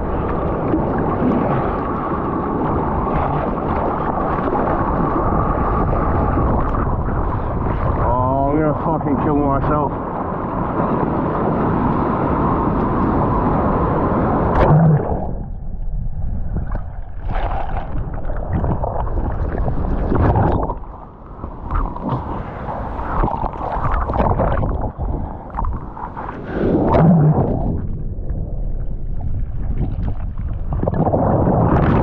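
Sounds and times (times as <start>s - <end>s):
surf rushing: 0.0s - 32.0s
turbulent water churning: 0.0s - 32.0s
wave hitting: 10.6s - 32.0s.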